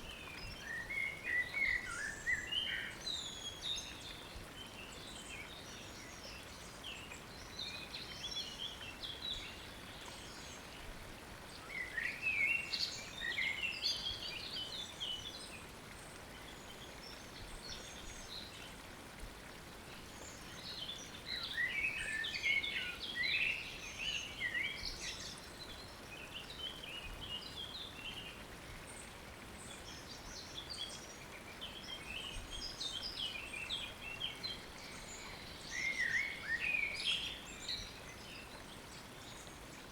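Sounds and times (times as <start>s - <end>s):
faint hiss of water: 0.0s - 39.9s
songbirds chirping and warbling: 20.2s - 39.9s.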